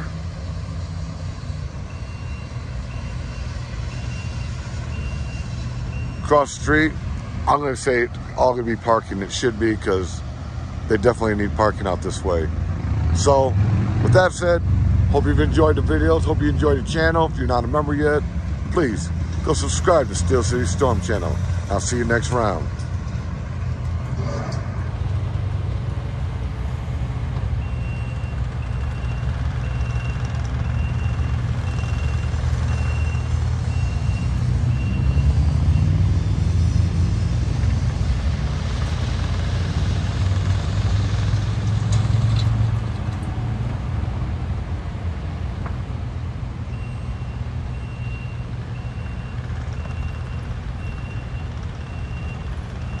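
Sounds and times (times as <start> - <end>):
low vehicle engine rumble: 0.0 - 53.0
reversing alarm beeping: 1.6 - 7.6, 27.6 - 36.1, 46.6 - 53.0.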